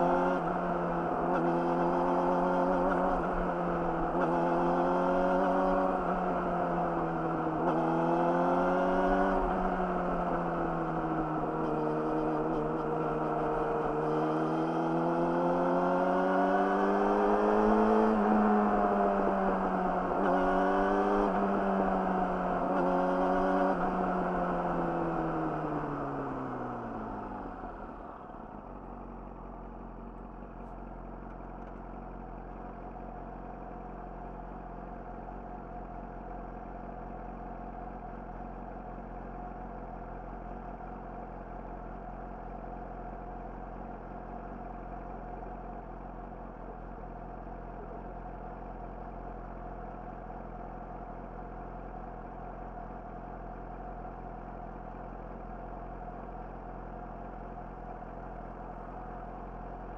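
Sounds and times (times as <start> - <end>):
motorcycle engine idling: 27.6 - 59.9.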